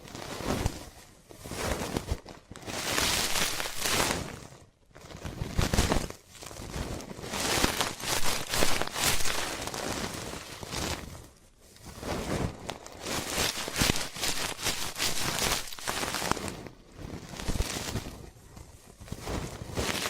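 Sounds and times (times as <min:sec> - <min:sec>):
ear pick scratching microphone: 0:02.7 - 0:04.4, 0:05.2 - 0:11.2, 0:11.9 - 0:20.0.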